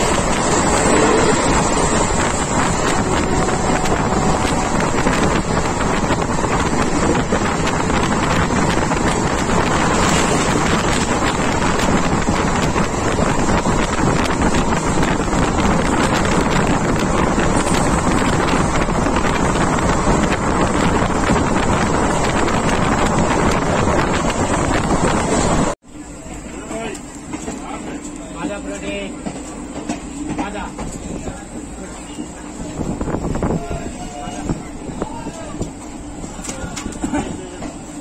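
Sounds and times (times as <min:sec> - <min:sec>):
wind buffeting microphone: 0:00.0 - 0:25.8, 0:32.5 - 0:37.7
train running on rails: 0:00.0 - 0:38.0.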